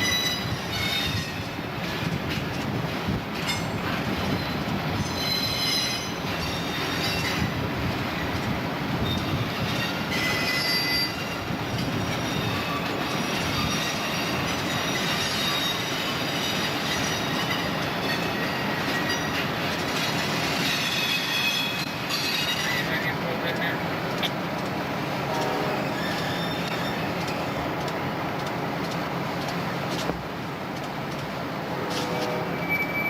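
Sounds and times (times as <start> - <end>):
high wheel squeals: 0.0 - 1.5, 3.5 - 7.5, 9.0 - 23.0, 25.6 - 27.2, 31.9 - 33.0
freight train rumbling past: 0.0 - 33.0.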